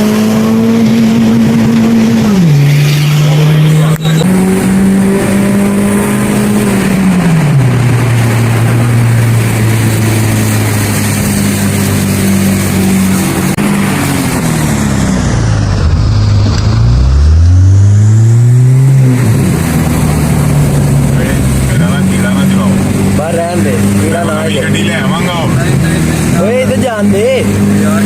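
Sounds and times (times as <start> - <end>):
car engine and exhaust: 0.0 - 28.0.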